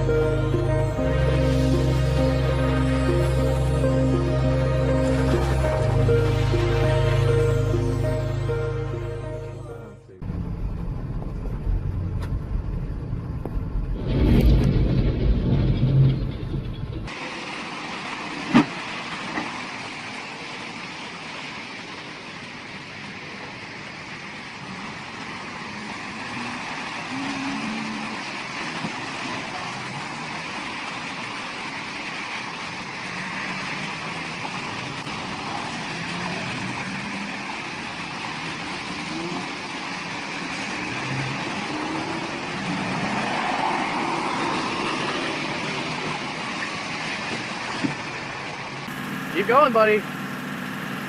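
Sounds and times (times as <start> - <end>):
faint wavering low tones: 0.0 - 10.2
engine and road rumble: 0.0 - 51.0.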